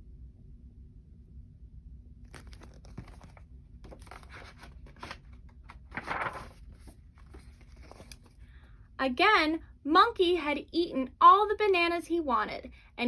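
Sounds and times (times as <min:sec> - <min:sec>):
crinkling and rustling: 0:02.2 - 0:08.4.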